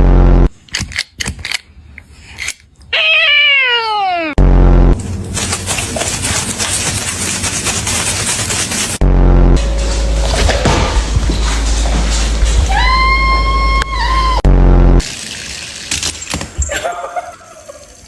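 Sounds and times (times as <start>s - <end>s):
cat meowing: 2.9s - 4.4s.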